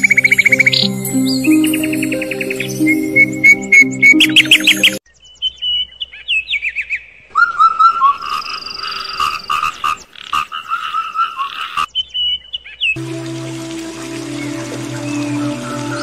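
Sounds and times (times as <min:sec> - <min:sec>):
birds whistling: 0:00.0 - 0:09.2, 0:13.8 - 0:16.0
frogs croaking: 0:07.3 - 0:11.9.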